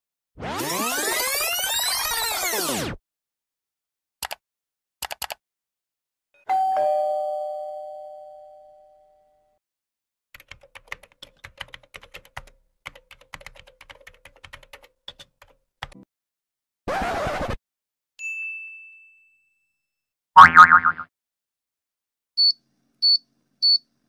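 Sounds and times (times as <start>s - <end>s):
computer keyboard typing: 5.0s - 5.4s, 10.4s - 16.0s.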